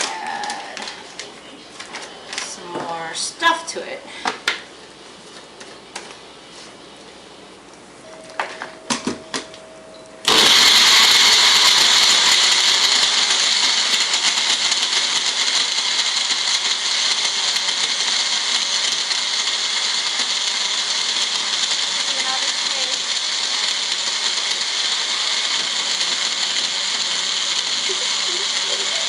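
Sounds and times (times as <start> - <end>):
blender running loud: 10.3 - 29.0.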